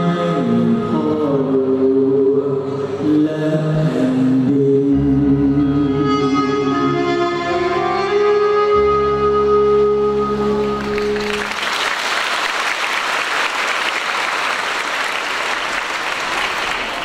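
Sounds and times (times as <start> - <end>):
audience applauding: 10.6 - 17.0.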